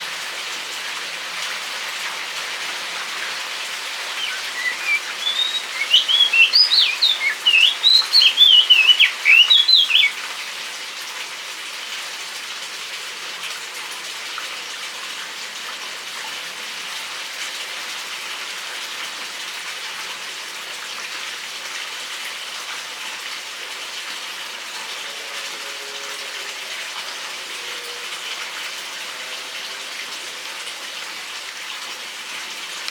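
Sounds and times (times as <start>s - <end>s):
rain pattering: 0.0s - 32.9s
bird twittering song: 4.0s - 10.2s.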